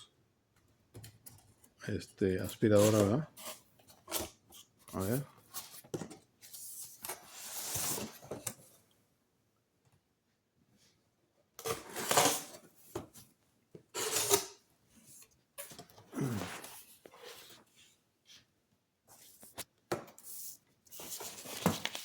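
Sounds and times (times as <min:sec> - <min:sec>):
cardboard rustling and tearing: 0:21.0 - 0:22.0.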